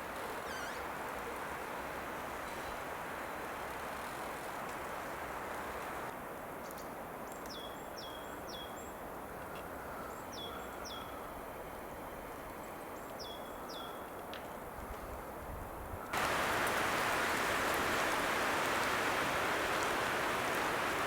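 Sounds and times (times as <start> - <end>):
snowstorm hiss: 1.0 - 6.1, 16.2 - 21.0.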